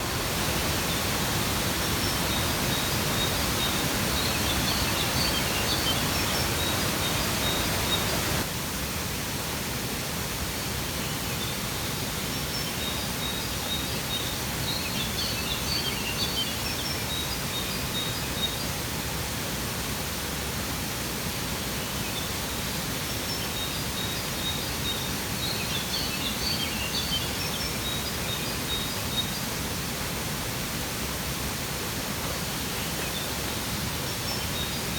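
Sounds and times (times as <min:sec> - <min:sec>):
waterfall rushing: 0:00.0 - 0:13.0
small birds chirping: 0:00.2 - 0:08.4.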